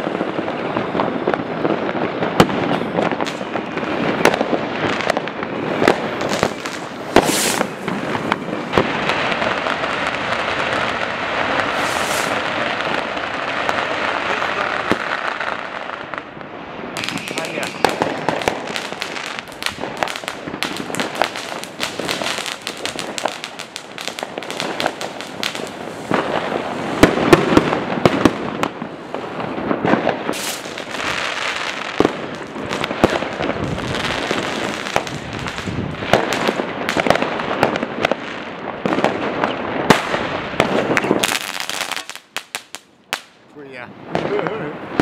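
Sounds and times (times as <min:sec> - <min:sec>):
fireworks and firecrackers banging: 0:00.0 - 0:45.0.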